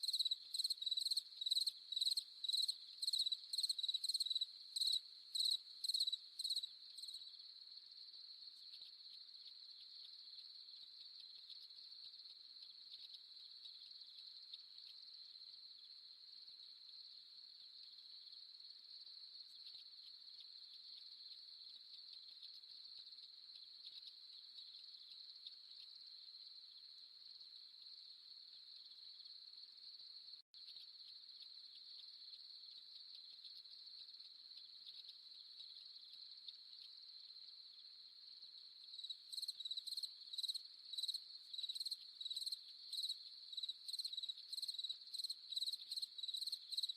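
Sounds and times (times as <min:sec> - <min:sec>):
crickets trilling: 0:00.0 - 0:07.4, 0:38.4 - 0:46.9
cricket chirping in pulses: 0:00.0 - 0:46.9.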